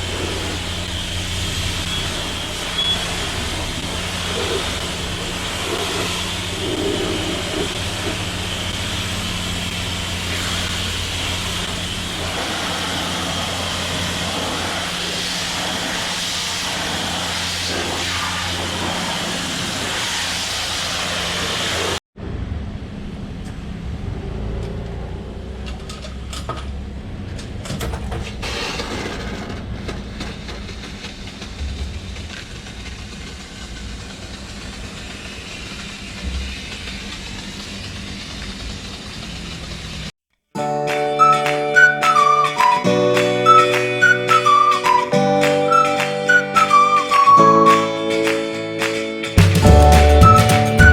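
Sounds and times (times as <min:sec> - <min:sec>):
pressure washer motor hum: 0:00.0 - 0:22.0, 0:30.4 - 0:40.1
uneven washing noise: 0:00.0 - 0:22.0
water spray hissing: 0:00.0 - 0:22.0, 0:30.4 - 0:40.1.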